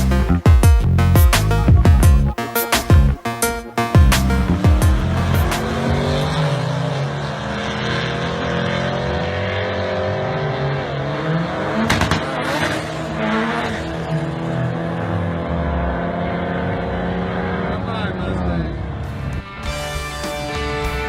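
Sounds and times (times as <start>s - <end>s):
truck engine running hard: 3.9s - 19.5s.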